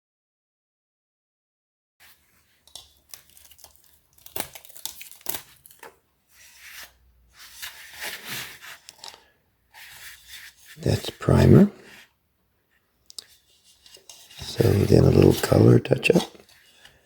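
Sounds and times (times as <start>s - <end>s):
scratchy rubbing and rustling: 2.0s - 9.1s, 9.7s - 12.1s, 13.2s - 17.0s.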